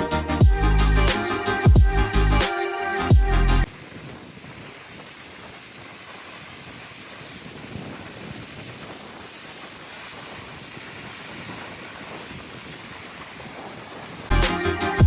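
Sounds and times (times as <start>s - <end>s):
ocean surf: 2.4s - 15.0s
wind noise on microphone: 3.1s - 15.0s.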